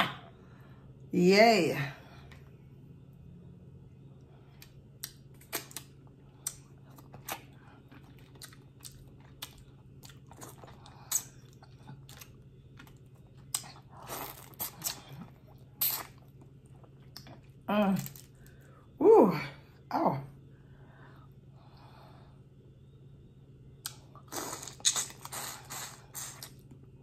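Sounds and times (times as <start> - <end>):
chewing: 4.5 - 18.7, 23.8 - 26.8.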